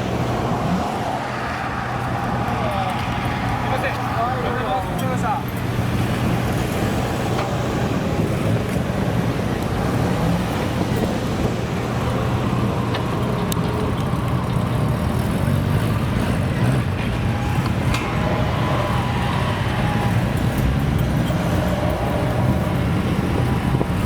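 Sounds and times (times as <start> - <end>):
road traffic noise: 0.0 - 24.0
car engine running: 5.5 - 24.0.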